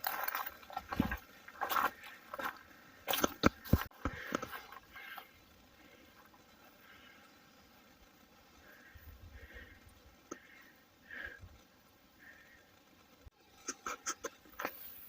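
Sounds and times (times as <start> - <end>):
footsteps crunching on a trail: 0.0 - 5.4.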